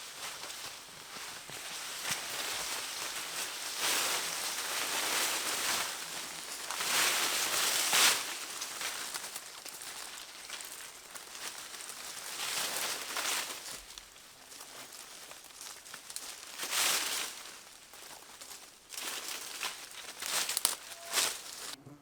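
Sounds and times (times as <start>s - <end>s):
dry undergrowth rustling: 0.0s - 21.8s
sharp snaps of twigs: 14.7s - 21.8s.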